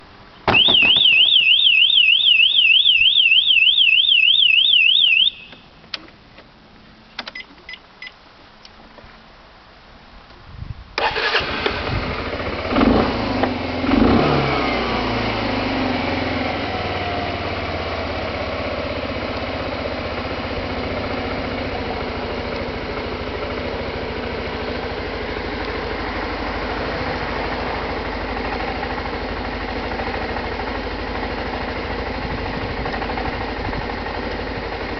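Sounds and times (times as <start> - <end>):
motorcycle engine starting and idling: 0.4 - 6.4, 11.0 - 34.9
warbling electronic alarm: 0.5 - 5.5
short beeps and clicks: 7.2 - 8.2.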